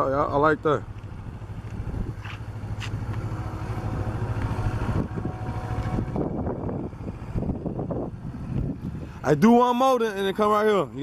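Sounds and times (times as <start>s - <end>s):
motorcycle engine at low speed: 0.0s - 11.0s
wind rumble on microphone: 1.7s - 9.6s.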